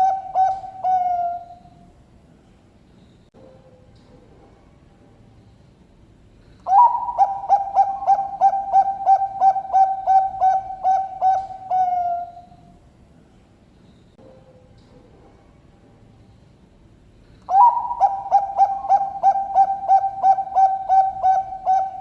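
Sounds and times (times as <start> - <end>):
zebra dove cooing: 0.0 - 1.8, 6.6 - 12.6, 17.4 - 22.0.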